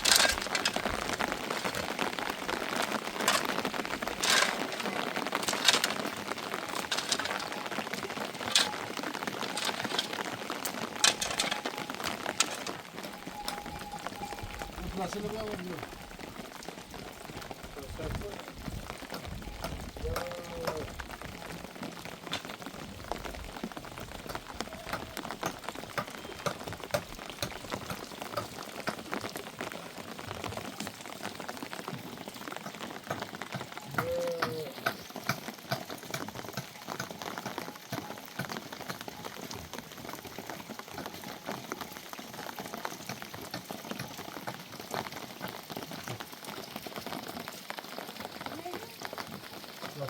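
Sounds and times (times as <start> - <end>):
rain pattering on a surface: 0.0 - 50.0.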